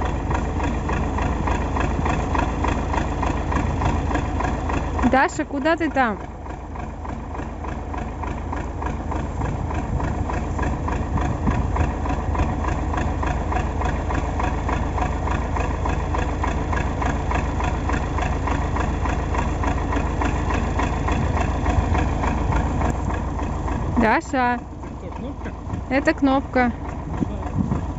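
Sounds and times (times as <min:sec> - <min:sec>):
tractor diesel engine idling: 0:00.0 - 0:27.9.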